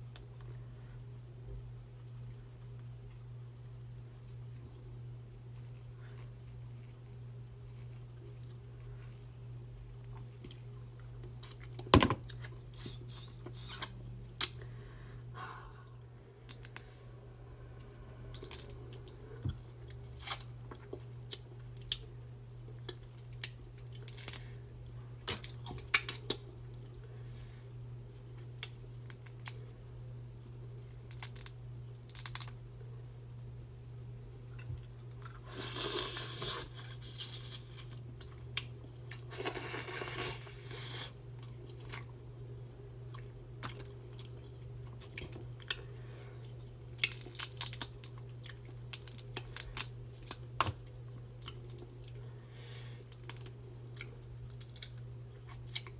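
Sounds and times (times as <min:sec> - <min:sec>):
steady low hum: 0:00.0 - 0:55.9
chewing with crunches: 0:05.4 - 0:14.8, 0:18.3 - 0:42.3, 0:42.9 - 0:55.9.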